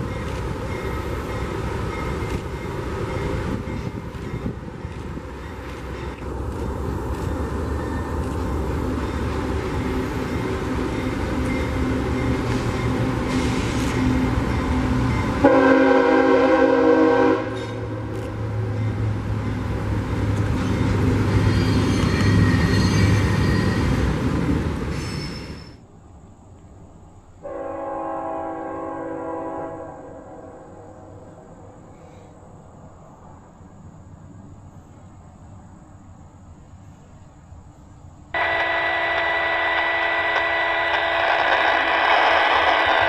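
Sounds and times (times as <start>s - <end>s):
diesel locomotive engine: 0.0s - 43.0s
freight train passing: 0.0s - 43.0s
train air horn blast: 15.4s - 18.0s, 27.4s - 31.3s, 38.4s - 42.0s.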